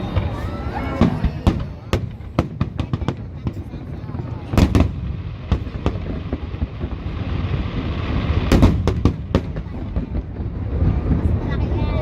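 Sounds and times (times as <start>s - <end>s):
fireworks rumble and crackle: 0.0s - 12.0s
firework shells bursting: 4.5s - 10.4s.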